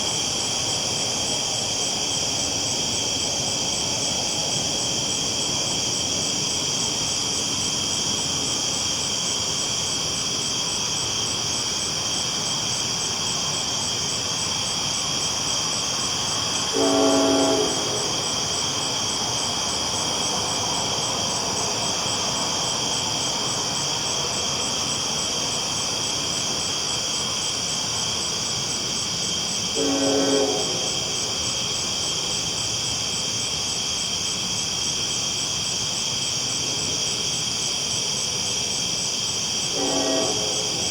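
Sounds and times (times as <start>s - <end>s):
train rolling on tracks: 0.0s - 34.9s, 35.5s - 40.9s
train horn blasts: 16.7s - 18.2s, 29.8s - 31.1s, 39.7s - 40.9s.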